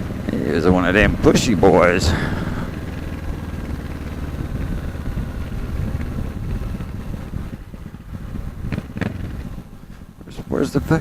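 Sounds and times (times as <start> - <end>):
motorcycle engine cruising: 0.0 - 11.0
wind noise on microphone: 4.3 - 11.0.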